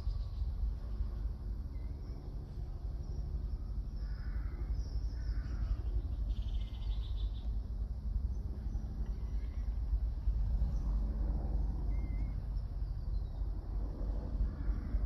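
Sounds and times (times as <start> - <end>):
steady low rumble: 0.0 - 15.0
wild birds calling: 3.1 - 7.5.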